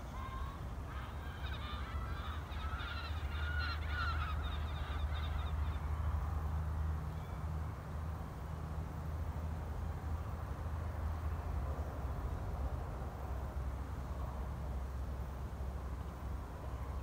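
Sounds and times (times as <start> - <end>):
birds calling: 0.0 - 5.8.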